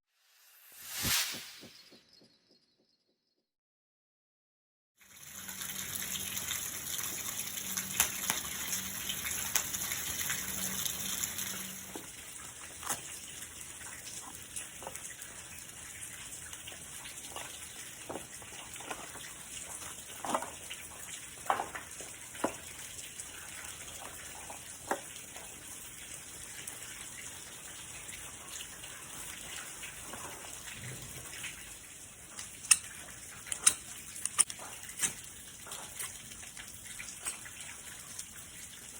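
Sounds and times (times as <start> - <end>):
steady rain: 5.2 - 12.2.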